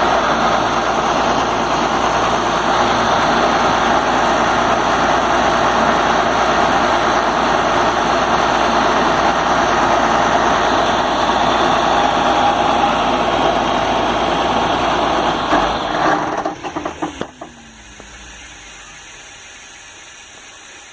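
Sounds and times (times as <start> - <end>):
air compressor running: 0.0 - 20.9
steady hiss: 10.6 - 20.9.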